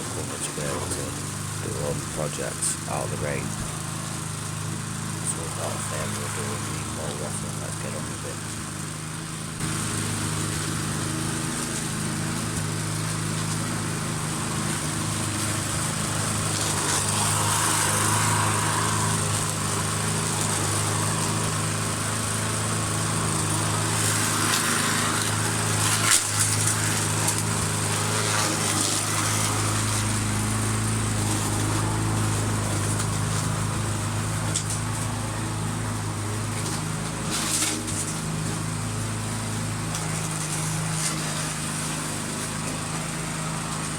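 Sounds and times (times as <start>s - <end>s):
petrol lawn mower engine: 0.0s - 43.9s.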